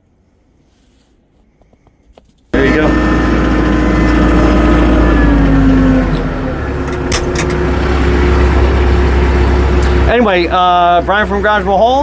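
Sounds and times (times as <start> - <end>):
tractor engine running: 2.6 - 12.0.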